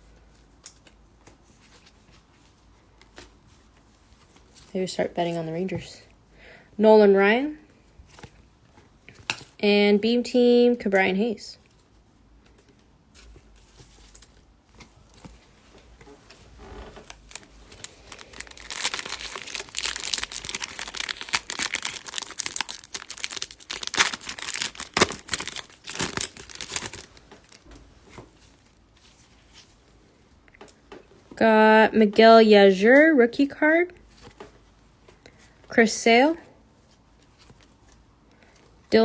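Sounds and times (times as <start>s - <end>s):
light rustling and handling: 11.7s - 31.4s, 36.6s - 38.9s
wrapper being torn and crumpled: 16.6s - 27.7s.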